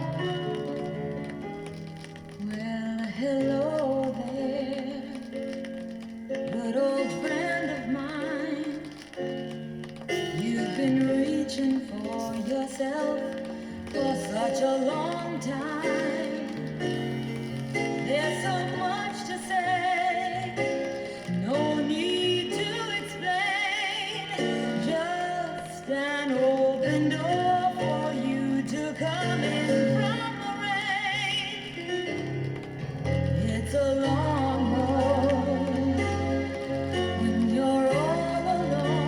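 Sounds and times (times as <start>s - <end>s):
guitar accompaniment: 0.0s - 39.0s
woman singing with vibrato: 2.4s - 5.4s, 6.5s - 9.1s, 10.3s - 16.6s, 18.0s - 32.2s, 33.4s - 39.0s.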